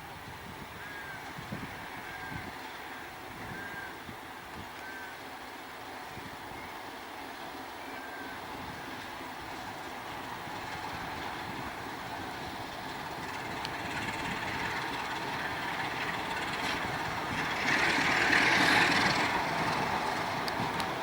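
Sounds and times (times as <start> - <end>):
freight train wagons rolling: 8.3 - 21.0
harsh rush of noise: 9.2 - 21.0.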